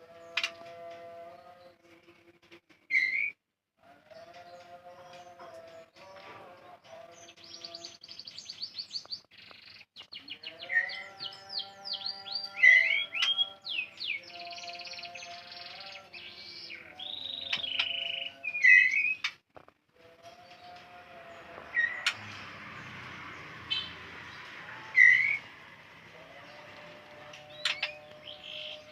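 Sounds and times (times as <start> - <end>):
bird chirping and whistling: 2.9 - 3.3, 12.0 - 15.1, 16.4 - 19.3, 25.0 - 25.4, 27.6 - 28.9.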